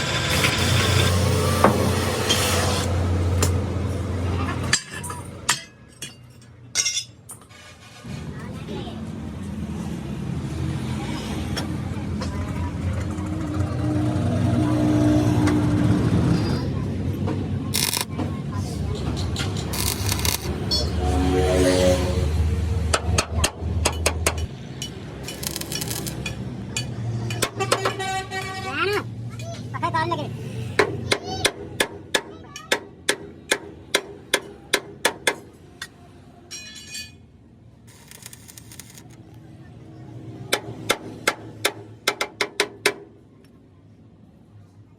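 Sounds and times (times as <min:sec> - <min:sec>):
heavy truck engine rumbling: 0:08.0 - 0:29.7
sharp clicks: 0:19.6 - 0:20.5.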